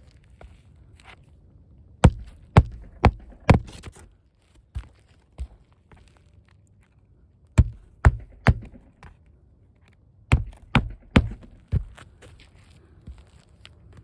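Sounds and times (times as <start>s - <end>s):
sharp heavy knocks: 2.0s - 3.8s, 7.6s - 9.1s, 10.3s - 11.9s.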